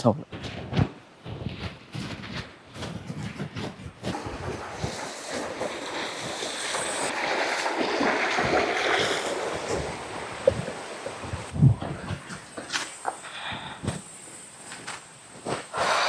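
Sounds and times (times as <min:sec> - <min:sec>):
waterfall rushing water: 0:04.2 - 0:11.5.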